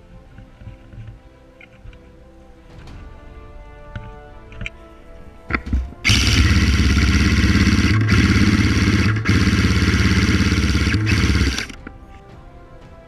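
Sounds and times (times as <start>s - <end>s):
airsoft gun firing bursts: 6.0s - 11.8s.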